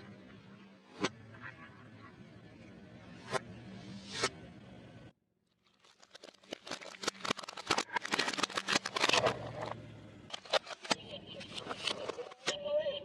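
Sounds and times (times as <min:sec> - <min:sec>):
food crunching under tyre: 0:05.5 - 0:10.6.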